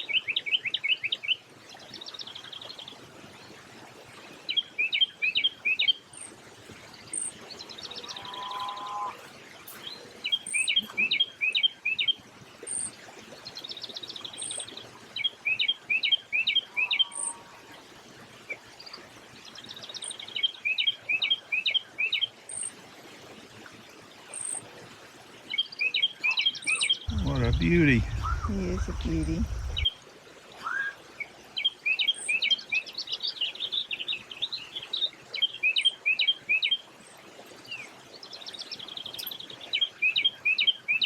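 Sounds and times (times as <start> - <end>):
songbird singing chirps and trills: 4.2 - 22.7, 25.4 - 30.0, 30.6 - 36.8, 37.6 - 41.0
faint high peep: 27.1 - 29.8.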